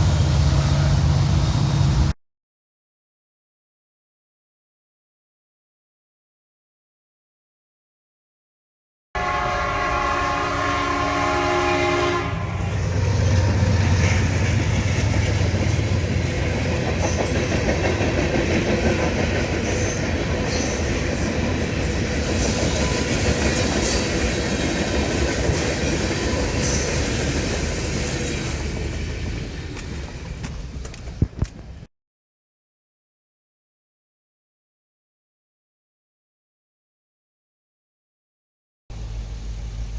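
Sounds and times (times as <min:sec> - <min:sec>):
locomotive engine rumbling: 0:00.0 - 0:02.1, 0:09.2 - 0:31.9, 0:38.9 - 0:39.9
train rolling by: 0:00.0 - 0:02.2, 0:09.2 - 0:31.9, 0:38.9 - 0:39.9
locomotive horn blast: 0:09.2 - 0:13.9.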